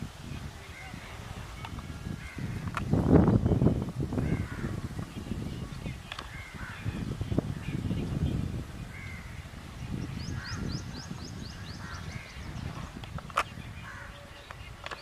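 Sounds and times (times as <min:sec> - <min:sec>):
crows cawing: 0:02.2 - 0:02.7, 0:04.2 - 0:04.8, 0:06.2 - 0:06.9, 0:08.9 - 0:09.4, 0:11.8 - 0:12.4.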